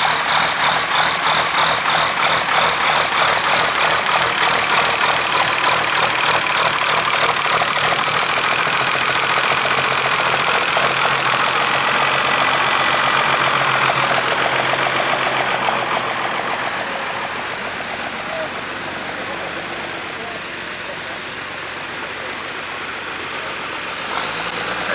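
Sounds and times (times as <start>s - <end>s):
tractor engine running under load: 0.0s - 24.9s.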